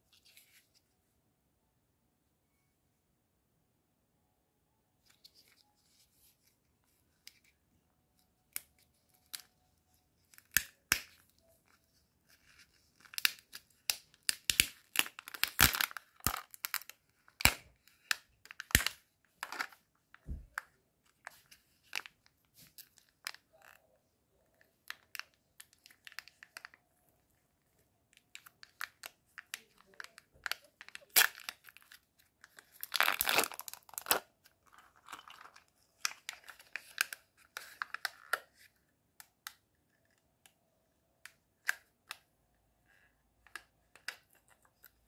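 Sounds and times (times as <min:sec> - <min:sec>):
foil wrapper tearing and crinkling: 0:13.0 - 0:17.6, 0:28.6 - 0:38.1.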